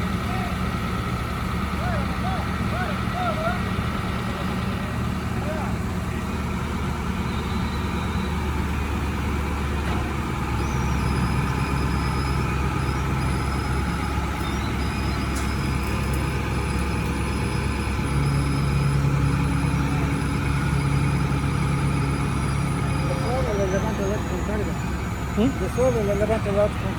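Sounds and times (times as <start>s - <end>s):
crane engine under load: 0.0s - 26.9s.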